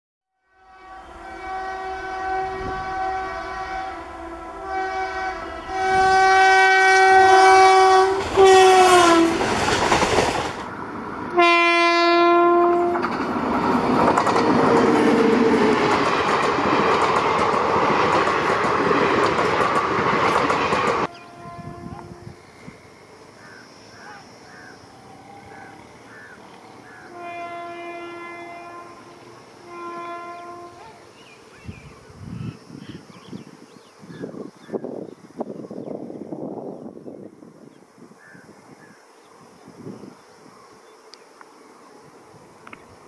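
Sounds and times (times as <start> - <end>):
locomotive horn blasts: 0.4 - 9.5, 11.3 - 13.1, 21.0 - 22.4, 26.8 - 31.0
train coaches rumbling past: 0.6 - 31.5.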